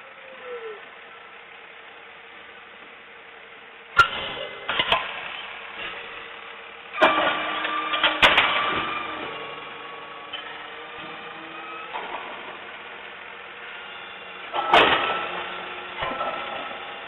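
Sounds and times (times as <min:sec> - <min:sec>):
garbage truck engine running: 0:00.0 - 0:17.0
mechanical clatter and sharp knocks: 0:04.0 - 0:06.0, 0:07.0 - 0:11.3, 0:14.5 - 0:16.9.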